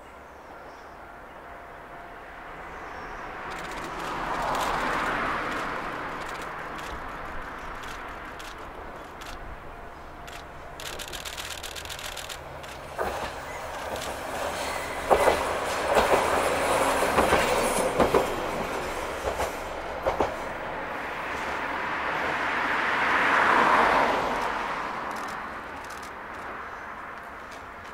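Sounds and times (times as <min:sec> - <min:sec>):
diesel railcar passing: 0:00.0 - 0:27.9
train wheels clacking over rail joints: 0:03.4 - 0:09.6, 0:10.2 - 0:20.7, 0:24.3 - 0:27.9.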